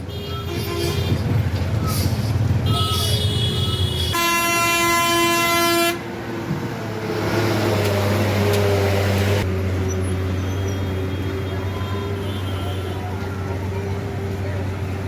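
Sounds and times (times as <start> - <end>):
loud horn blast: 2.6 - 6.1.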